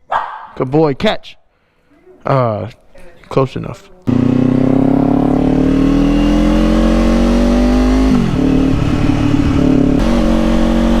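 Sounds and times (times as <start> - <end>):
motorcycle engine accelerating: 4.1 - 11.0.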